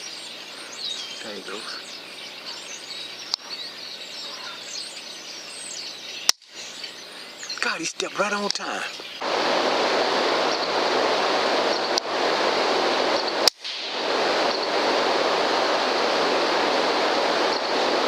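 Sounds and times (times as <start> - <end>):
steady rushing noise: 7.6 - 18.0.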